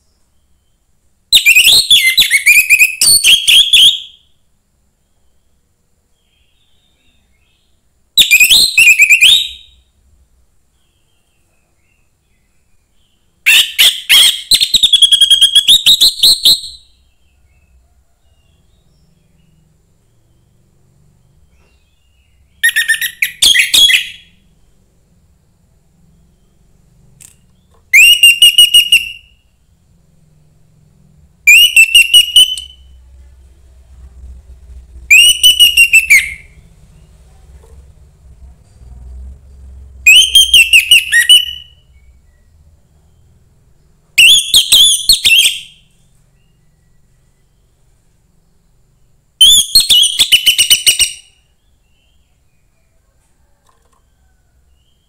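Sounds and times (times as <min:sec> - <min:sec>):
thrush singing whistled phrases: 0:01.3 - 0:04.3, 0:08.2 - 0:09.8, 0:13.5 - 0:17.1, 0:21.5 - 0:24.4, 0:27.9 - 0:29.6, 0:31.4 - 0:33.0, 0:35.1 - 0:36.6, 0:40.0 - 0:42.5, 0:44.2 - 0:46.6, 0:49.4 - 0:52.2.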